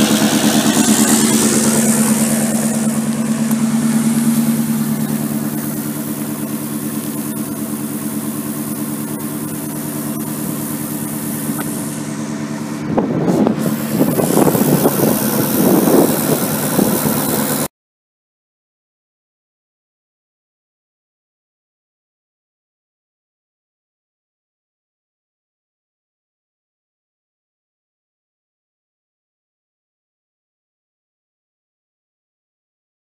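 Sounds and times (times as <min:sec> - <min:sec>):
car engine idling: 0:00.0 - 0:17.7.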